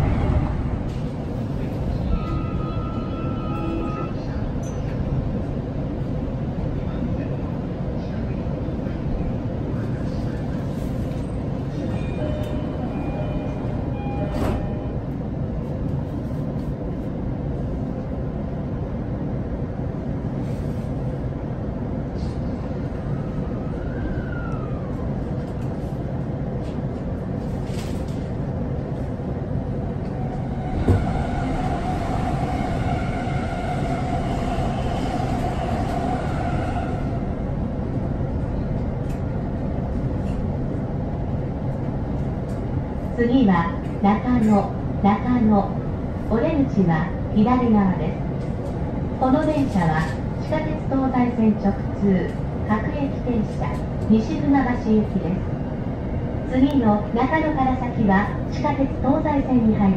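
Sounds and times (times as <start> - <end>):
train wheels rumbling: 23.2 - 45.0.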